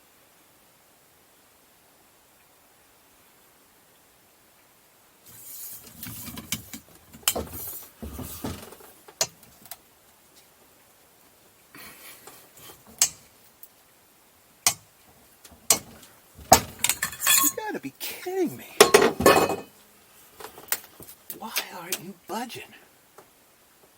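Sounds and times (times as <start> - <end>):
metal hand tools clinking: 12.6 - 13.3, 15.6 - 17.8, 18.8 - 19.8.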